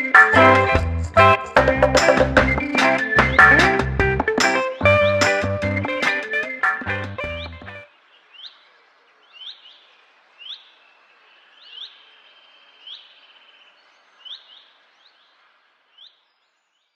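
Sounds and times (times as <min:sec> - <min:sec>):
music track: 0:00.0 - 0:07.8
faint outdoor background hiss: 0:00.0 - 0:16.9
bird chirping: 0:01.4 - 0:16.9.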